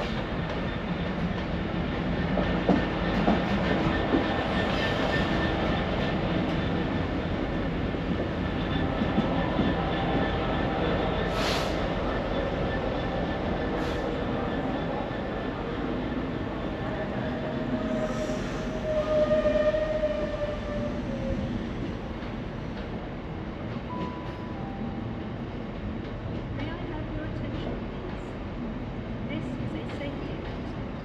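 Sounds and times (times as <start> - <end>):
train wheels clattering on rails: 0.0 - 15.0
short hisses: 11.3 - 11.8.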